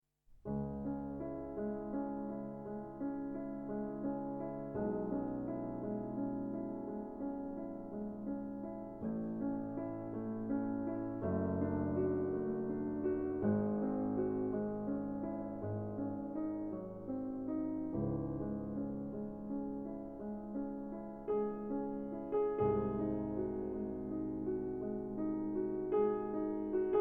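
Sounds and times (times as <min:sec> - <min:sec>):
soft piano music: 0:00.4 - 0:27.0.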